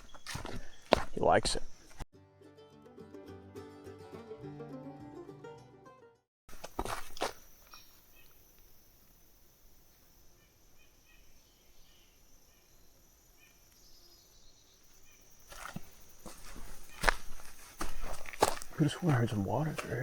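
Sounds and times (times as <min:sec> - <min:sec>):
footsteps on trail: 0:00.0 - 0:02.0, 0:06.5 - 0:08.0, 0:15.0 - 0:20.0
soft bird chirps: 0:00.0 - 0:02.0, 0:07.4 - 0:08.8, 0:10.0 - 0:19.0
high insect drone: 0:06.5 - 0:20.0.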